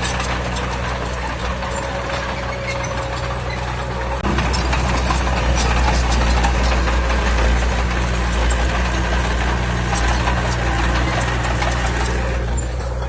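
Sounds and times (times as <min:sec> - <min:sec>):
heavy diesel engine running: 0:00.0 - 0:13.0
light clatter: 0:00.0 - 0:13.0.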